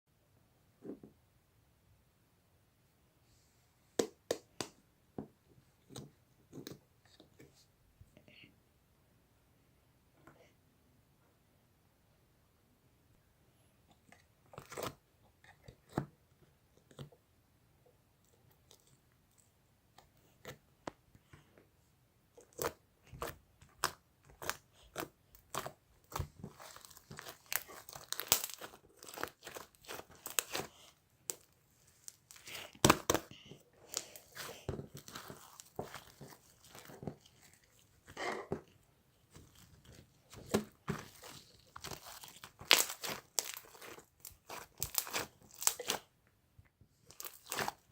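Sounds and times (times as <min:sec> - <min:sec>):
crinkling and tearing crackles: 0:22.4 - 0:46.2, 0:46.9 - 0:47.9.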